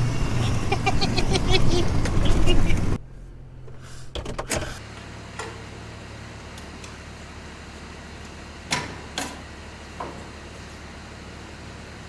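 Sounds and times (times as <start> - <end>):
engine idling hum: 0.0 - 8.7.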